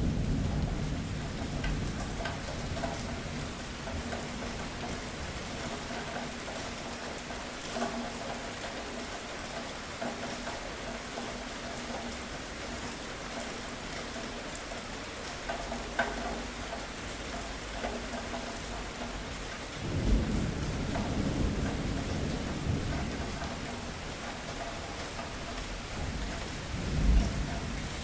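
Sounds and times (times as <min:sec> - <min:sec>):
thunder rumbling: 0:00.0 - 0:06.7, 0:19.8 - 0:28.0
louder raindrops: 0:00.0 - 0:28.0
steady rain falling: 0:00.0 - 0:28.0.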